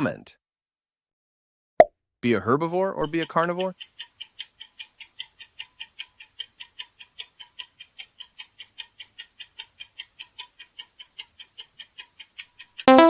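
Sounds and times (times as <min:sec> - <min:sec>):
fast clock ticking: 0:03.0 - 0:13.0.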